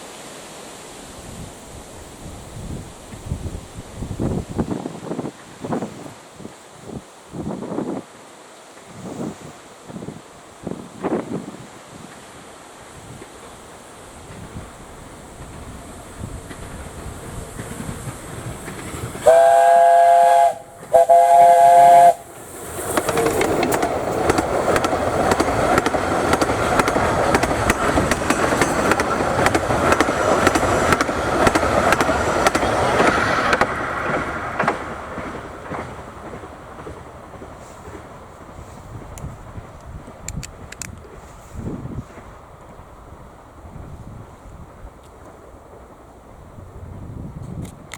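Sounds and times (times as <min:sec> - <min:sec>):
train wheels clattering rumble: 0:13.2 - 0:19.8, 0:21.7 - 0:43.0
steam locomotive chime whistle: 0:19.2 - 0:22.3.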